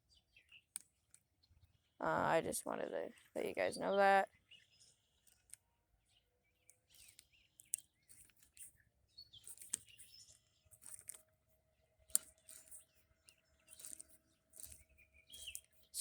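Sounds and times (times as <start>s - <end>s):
bird chirps: 0.0s - 0.8s, 6.0s - 11.0s, 12.1s - 16.0s.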